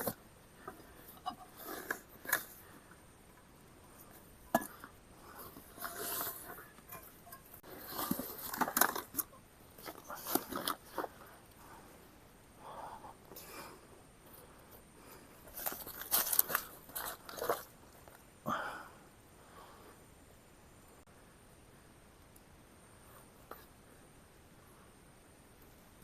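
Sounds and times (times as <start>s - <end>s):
rustling and clicking of camp gear: 0.0s - 11.8s, 14.4s - 18.3s.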